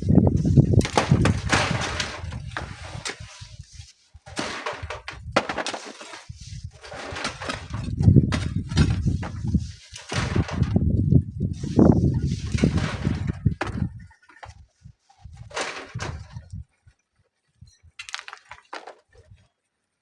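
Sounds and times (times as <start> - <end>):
wind buffeting the microphone: 0.0 - 5.4, 6.2 - 17.0.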